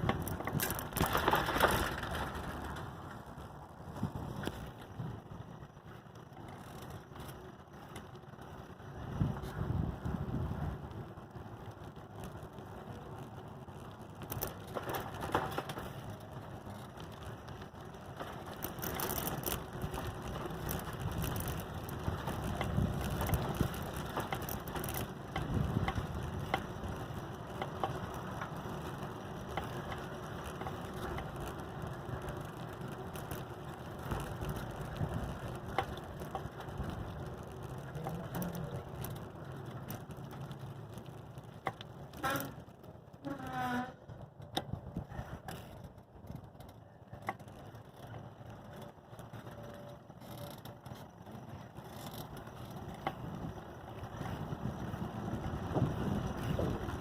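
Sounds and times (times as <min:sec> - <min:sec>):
chain and frame rattling: 0:00.0 - 0:03.1, 0:14.2 - 0:17.2, 0:18.0 - 0:26.6
tyres rolling over pavement: 0:00.0 - 0:57.0.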